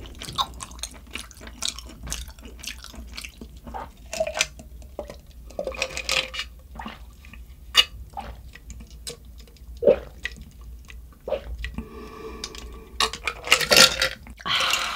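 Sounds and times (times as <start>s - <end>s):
wet mouth eating sounds: 0.0s - 13.4s
slurping and drinking: 8.1s - 8.5s, 11.3s - 13.8s.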